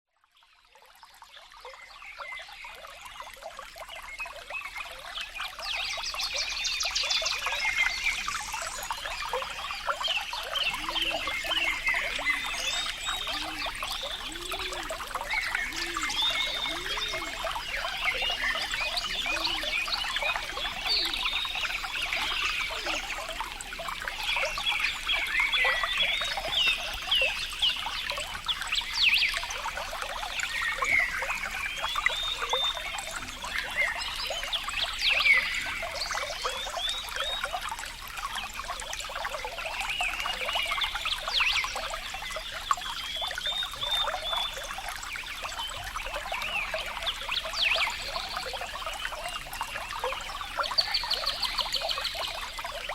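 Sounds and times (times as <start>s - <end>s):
water trickling: 0.2s - 52.9s
low repeated bird calls: 1.6s - 52.9s
birds chirping: 6.4s - 29.5s.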